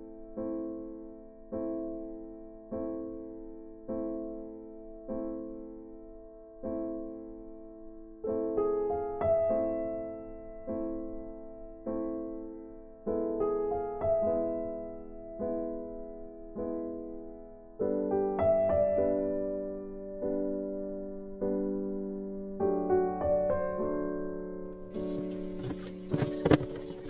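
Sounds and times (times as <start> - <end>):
slow piano music: 0.0 - 25.3.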